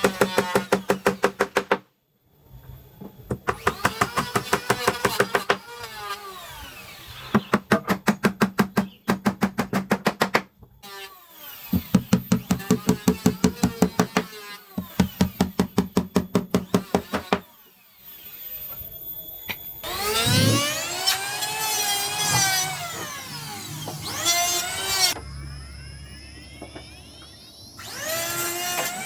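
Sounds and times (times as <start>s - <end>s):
power tool whine: 16.6s - 29.0s.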